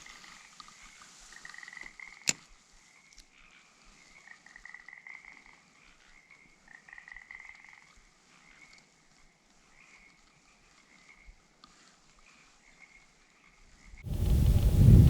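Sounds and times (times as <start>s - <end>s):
frogs trilling: 1.3s - 8.8s.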